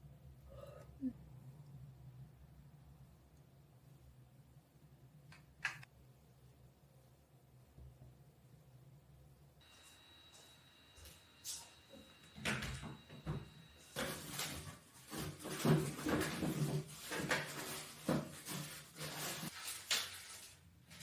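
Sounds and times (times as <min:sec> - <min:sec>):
faint steady high tone: 0:09.6 - 0:14.5
knocks and clatters of objects: 0:12.4 - 0:20.1.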